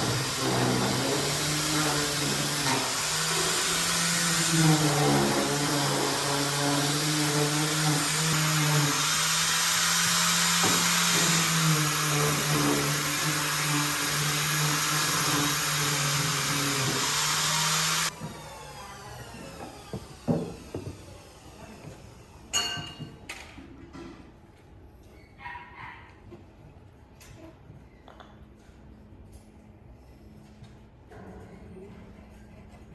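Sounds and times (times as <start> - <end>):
power tool motor humming and hissing: 0.0 - 22.2.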